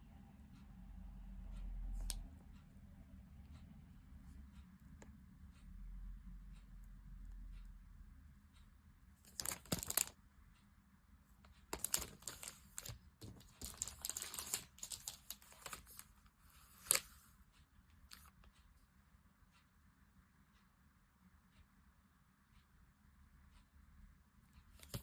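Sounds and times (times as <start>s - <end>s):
plastic and paper wrapping crinkling: 9.3s - 10.1s, 11.7s - 16.1s, 16.7s - 17.1s.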